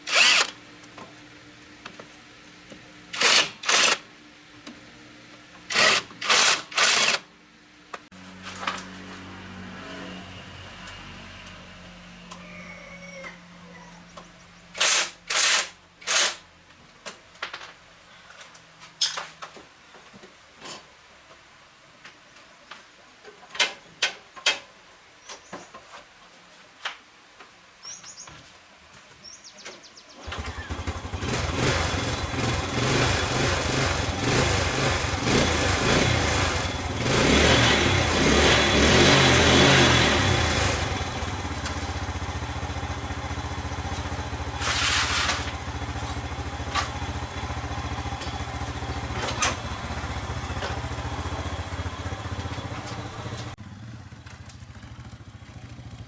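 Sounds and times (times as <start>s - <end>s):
motorcycle engine revving and idling: 30.2s - 56.0s.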